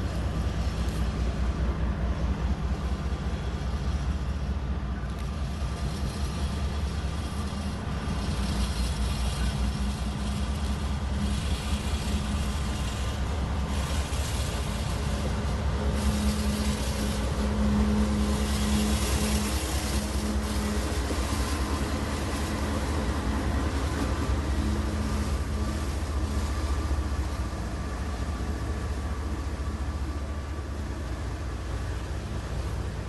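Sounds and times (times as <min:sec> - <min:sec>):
train hum: 0:00.0 - 0:33.0
train rumbling past: 0:00.0 - 0:33.0.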